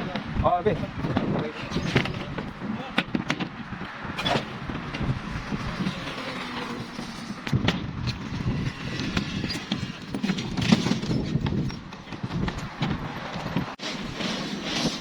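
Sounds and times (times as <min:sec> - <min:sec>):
irregular knocks and clatter: 0:00.0 - 0:05.2.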